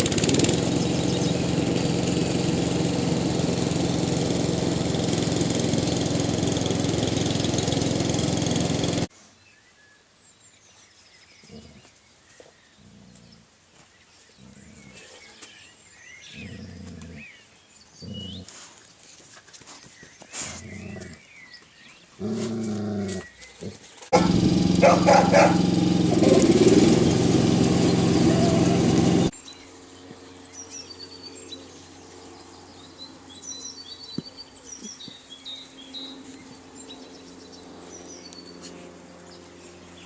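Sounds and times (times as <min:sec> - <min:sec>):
loud mechanical hum: 0:00.0 - 0:09.1, 0:24.2 - 0:40.0
dog growling and whining: 0:22.2 - 0:24.3.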